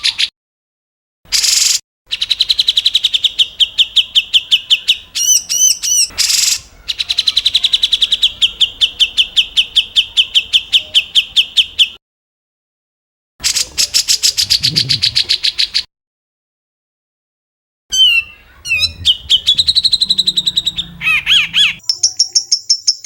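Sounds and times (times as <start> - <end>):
songbird fast trill: 1.3 - 12.0, 17.9 - 23.0
bird harsh rasp: 17.9 - 21.8.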